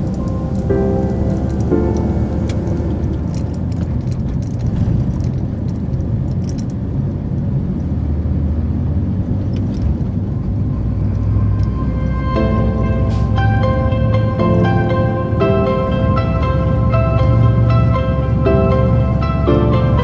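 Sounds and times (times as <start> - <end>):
background music: 0.0 - 4.3, 11.1 - 20.0
truck engine and road rumble: 0.0 - 20.0.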